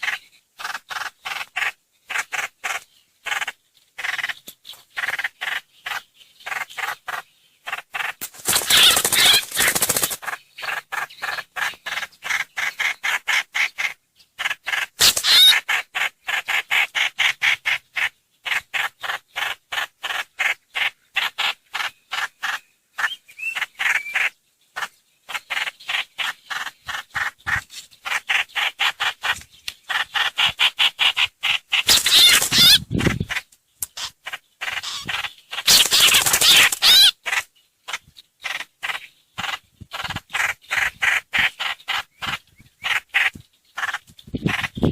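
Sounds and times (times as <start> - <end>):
bird song repeated notes: 20.6 - 44.9.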